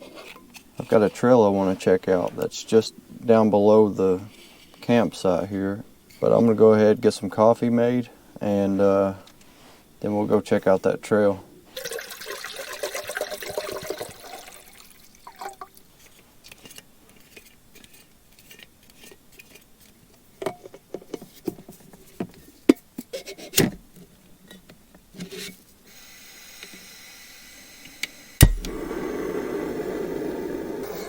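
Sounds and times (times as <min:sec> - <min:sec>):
faint steady hiss: 0:00.0 - 0:31.0
sharp click: 0:28.4 - 0:28.8
steady rushing sound: 0:28.4 - 0:31.0.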